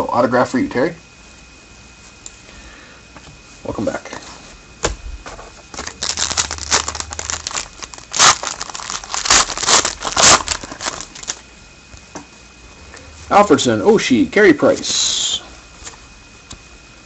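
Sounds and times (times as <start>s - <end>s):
wrapper tearing and crinkling: 5.7s - 11.4s.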